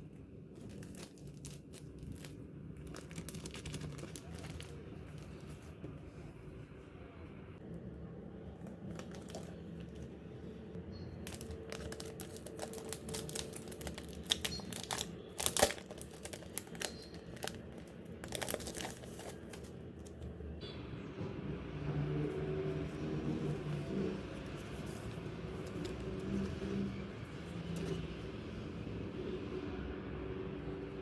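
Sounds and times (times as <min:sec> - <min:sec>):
low background hum: 0:00.0 - 0:31.0
packaging crinkling: 0:00.6 - 0:05.7, 0:08.7 - 0:10.1, 0:11.2 - 0:20.2.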